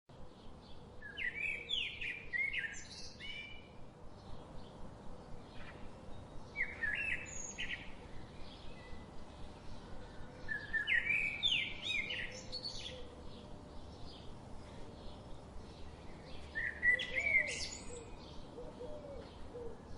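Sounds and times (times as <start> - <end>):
faint bird chirps: 5.6 - 19.9
bird whistling song: 6.6 - 7.9, 10.5 - 13.1, 16.4 - 19.2.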